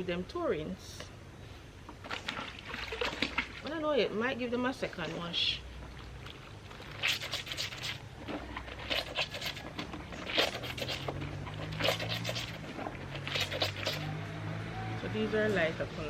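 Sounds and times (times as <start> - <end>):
wet clothes scrubbed by hand: 2.0 - 4.0, 4.9 - 15.0.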